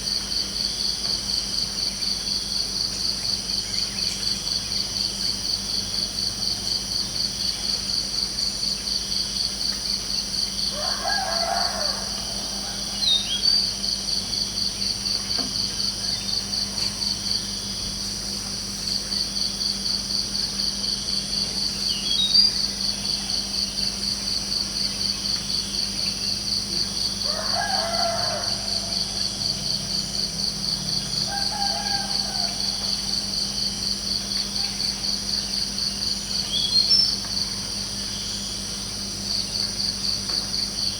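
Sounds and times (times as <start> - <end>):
crickets chirping: 0.0 - 40.9
rooster crowing: 10.7 - 13.6, 27.2 - 33.5.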